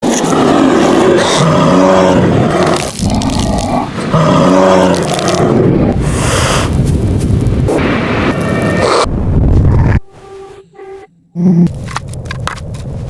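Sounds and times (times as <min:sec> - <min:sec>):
tiger roaring: 0:00.0 - 0:06.4.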